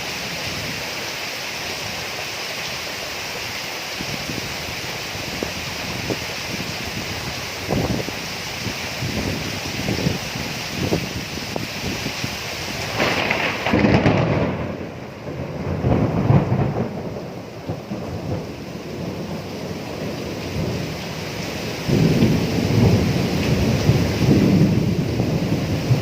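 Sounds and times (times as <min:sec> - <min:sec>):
steady rain: 0:00.0 - 0:26.0
thunder rumbling: 0:04.0 - 0:26.0.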